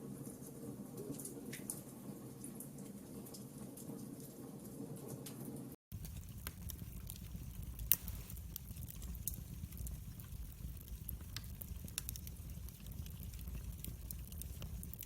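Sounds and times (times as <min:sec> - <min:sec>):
campfire crackling and popping: 0:05.9 - 0:15.0.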